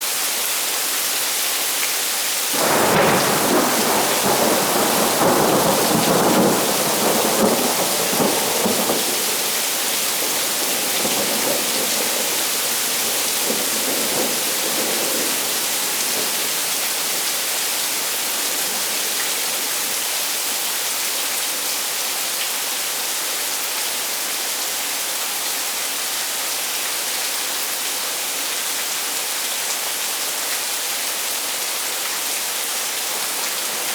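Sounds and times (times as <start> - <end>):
heavy rain hissing: 2.4 - 20.7, 32.8 - 33.9
thunder rumbling: 2.6 - 17.3.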